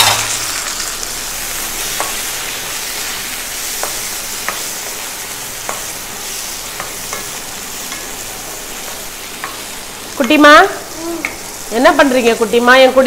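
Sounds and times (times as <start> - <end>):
vegetables sizzling in oil: 0.0 - 13.0
spatula knocking pan: 1.9 - 2.3, 3.7 - 6.0, 6.6 - 10.5.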